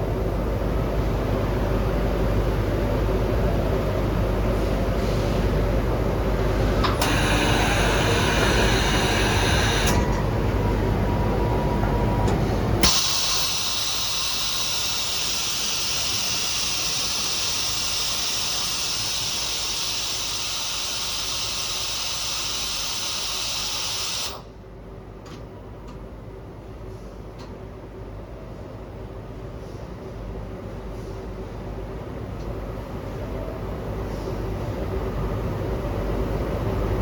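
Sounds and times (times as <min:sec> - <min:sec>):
low mechanical rumble: 0:00.0 - 0:28.4, 0:31.3 - 0:37.0
quiet machine hum: 0:05.6 - 0:28.4
loud steady machine hiss: 0:06.9 - 0:10.2, 0:12.8 - 0:24.5.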